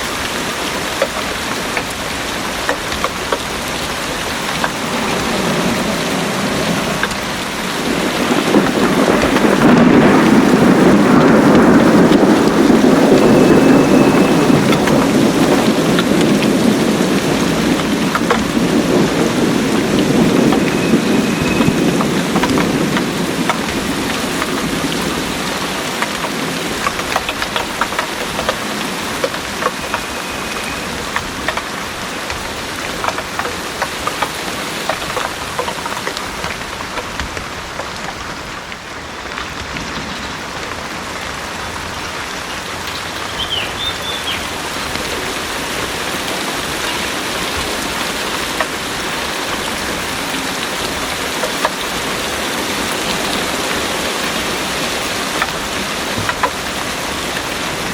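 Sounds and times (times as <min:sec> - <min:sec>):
thunder rumble: 0:00.0 - 0:43.4
heavy rain: 0:00.0 - 0:57.9
raindrops ticking close by: 0:00.0 - 0:57.9.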